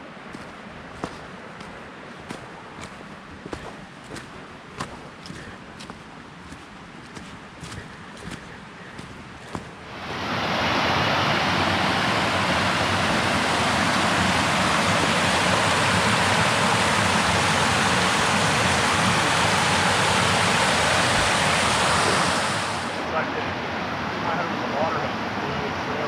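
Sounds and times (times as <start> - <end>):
river water rushing over rock: 0.0 - 23.0.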